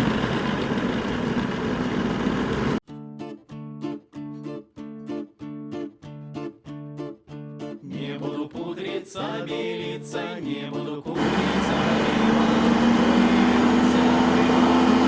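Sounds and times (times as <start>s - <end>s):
motorcycle engine drone: 0.0s - 2.8s, 11.2s - 15.0s
folk song with singing: 7.5s - 15.0s.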